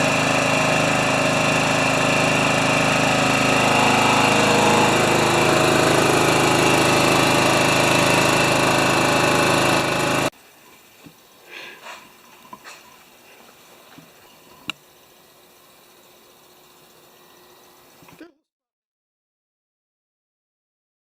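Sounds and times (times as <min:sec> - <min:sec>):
small gasoline engine idling: 0:00.0 - 0:10.3.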